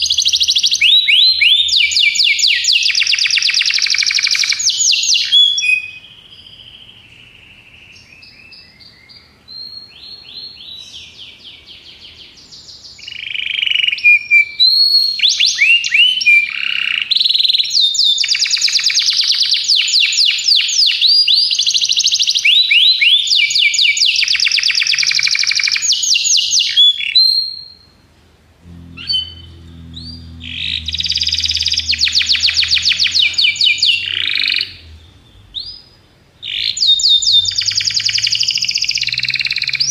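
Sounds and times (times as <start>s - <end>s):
canary singing trills: 28.6s - 39.9s.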